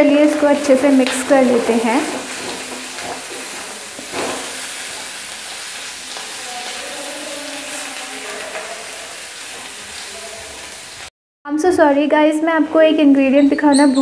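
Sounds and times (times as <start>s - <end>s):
potatoes sizzling in hot oil: 0.0s - 11.1s
spatula stirring in pan: 0.3s - 11.1s.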